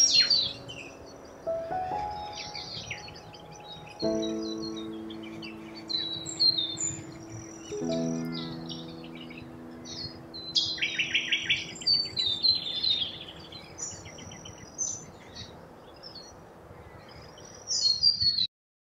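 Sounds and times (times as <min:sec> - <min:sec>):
small birds chirping: 0:00.0 - 0:18.5.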